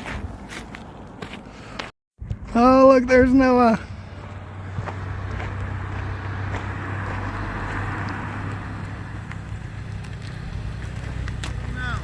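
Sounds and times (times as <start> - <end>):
car engine humming: 2.6 - 12.0.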